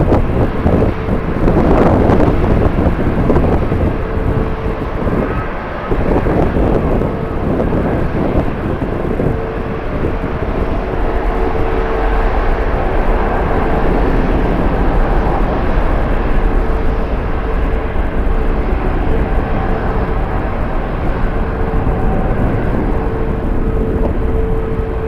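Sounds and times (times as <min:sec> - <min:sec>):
jet airliner engine roar: 0:00.0 - 0:25.0
wind buffeting microphone: 0:00.0 - 0:25.0.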